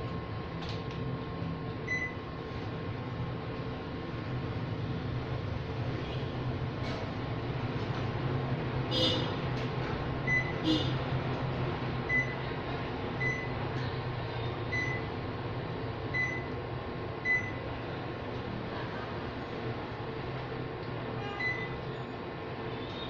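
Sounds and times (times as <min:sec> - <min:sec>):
air conditioner humming: 0:00.0 - 0:23.0.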